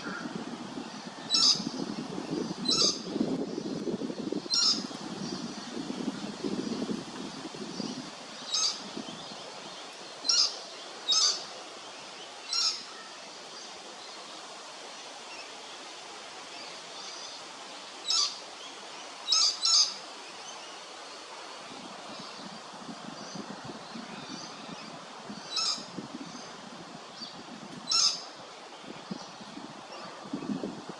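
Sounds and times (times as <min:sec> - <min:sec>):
faint background hiss: 0:00.0 - 0:30.9.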